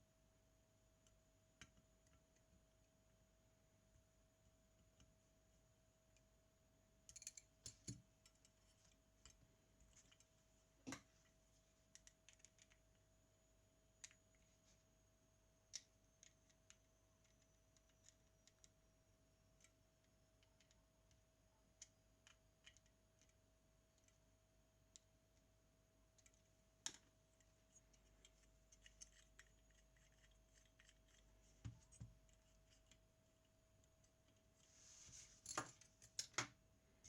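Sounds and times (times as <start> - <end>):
faint steady hum: 0.0 - 37.0
small tools clicking and tapping: 7.1 - 10.3, 35.4 - 36.6.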